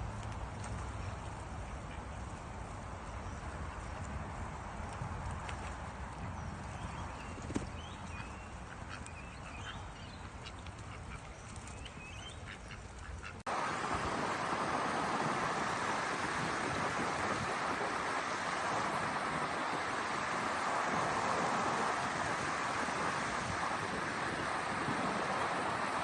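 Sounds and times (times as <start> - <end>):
steady rushing noise: 0.0 - 26.0
bird chirps: 6.4 - 12.8.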